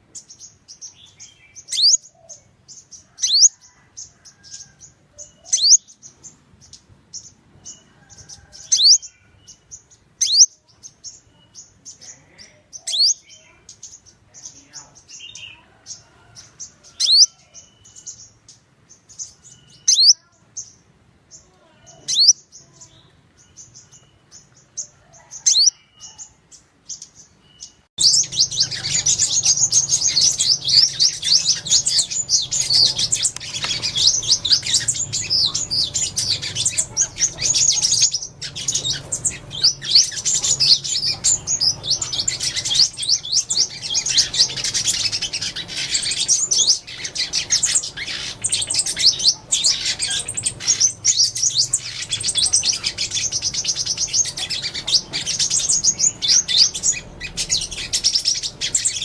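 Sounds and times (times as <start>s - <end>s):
sharp high bird calls: 0.0s - 59.0s
sunbirds chirping: 0.0s - 59.0s.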